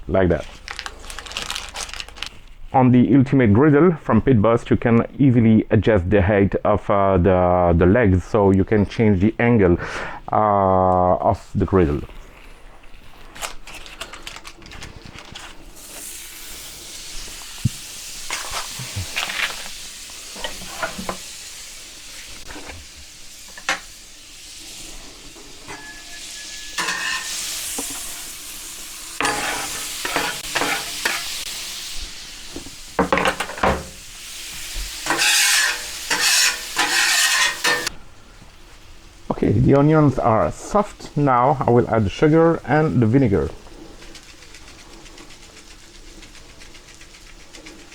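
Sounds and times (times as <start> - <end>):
onions sizzling on a griddle: 15.6 - 39.3, 42.7 - 47.9
metal spatula scraping and knocking: 20.4 - 21.2, 25.7 - 28.1, 29.2 - 31.4, 35.0 - 37.9.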